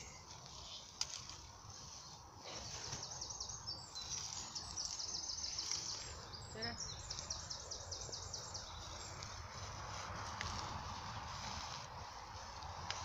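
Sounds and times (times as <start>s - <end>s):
low outdoor rumble: 0.0s - 13.0s
songbird high chirps: 1.9s - 9.7s.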